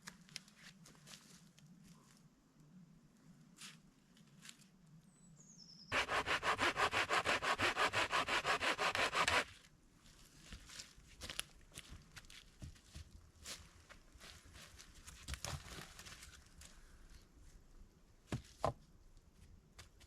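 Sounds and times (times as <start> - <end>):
hand saw cutting wood: 5.9 - 9.5.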